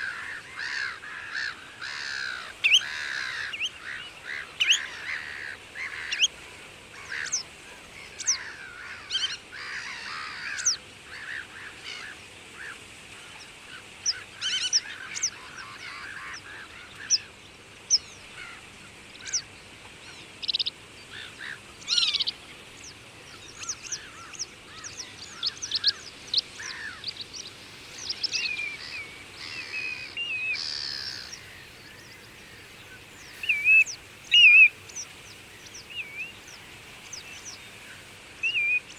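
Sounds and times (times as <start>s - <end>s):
birds chirping and singing: 26.6s - 38.9s.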